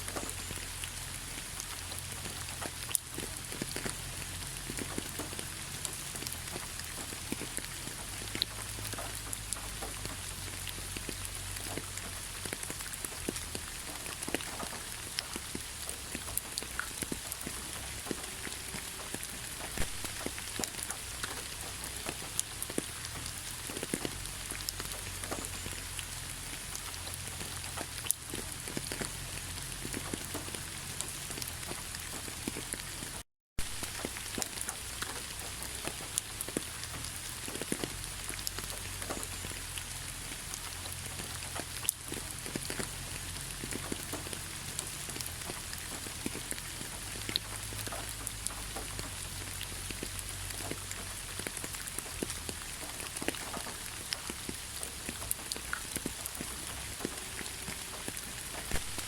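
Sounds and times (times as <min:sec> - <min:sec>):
raindrops ticking on a surface: 0:00.0 - 0:59.0
heavy rain hissing: 0:15.6 - 0:31.7, 0:54.6 - 0:59.0.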